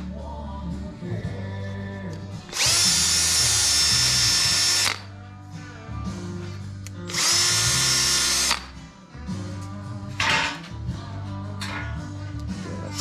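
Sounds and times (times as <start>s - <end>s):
background music: 0.0s - 13.0s
drill with abrasive disc whining: 2.5s - 5.1s, 7.1s - 8.7s.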